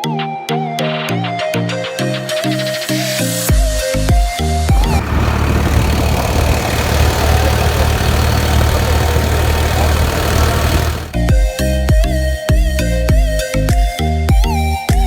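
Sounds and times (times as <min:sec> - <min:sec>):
rumble of travel noise: 0:04.8 - 0:11.2
tractor engine running: 0:04.8 - 0:11.3.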